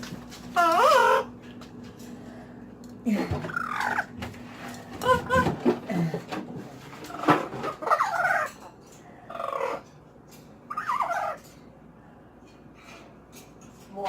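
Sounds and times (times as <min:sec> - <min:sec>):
parrot warbling calls: 0:00.5 - 0:01.4, 0:03.5 - 0:04.1, 0:07.8 - 0:08.6, 0:09.3 - 0:09.9, 0:10.7 - 0:11.5.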